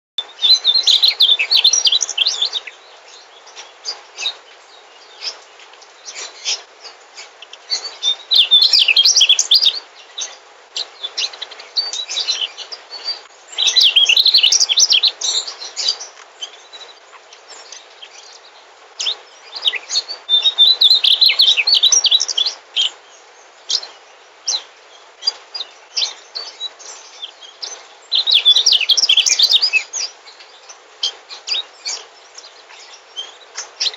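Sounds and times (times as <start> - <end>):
bird singing twittering phrases: 0.2 - 33.9
faint steady hiss: 0.2 - 33.9.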